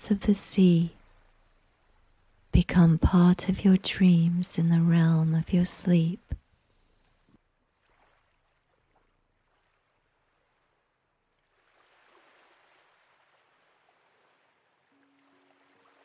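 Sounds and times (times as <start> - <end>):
faint sea waves: 0.0 - 6.4, 7.6 - 16.0
soft sustained musical note: 14.9 - 16.0.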